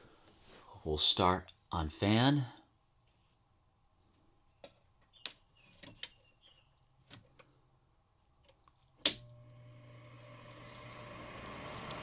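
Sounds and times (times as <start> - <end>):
switch click: 9.0 - 9.3
fan motor humming: 9.1 - 12.0.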